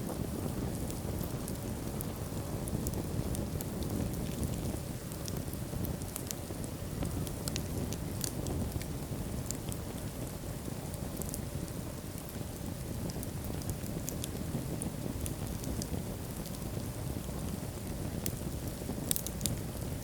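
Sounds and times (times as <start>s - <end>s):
fire rumbling: 0.0s - 20.0s
logs crackling and popping: 0.0s - 20.0s.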